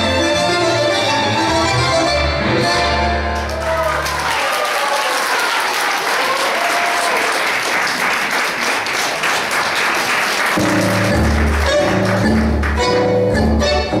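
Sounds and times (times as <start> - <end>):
tango music with strong bass: 0.0 - 3.8, 10.6 - 14.0
audience applauding: 3.3 - 13.0.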